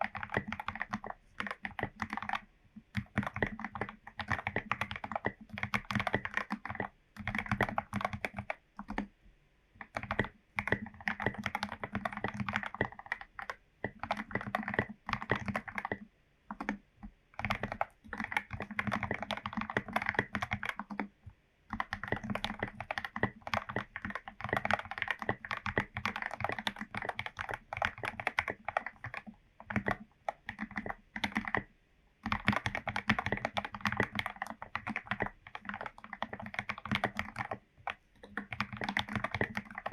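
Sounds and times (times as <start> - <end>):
mechanical keyboard typing: 0.0 - 9.1, 9.8 - 39.9.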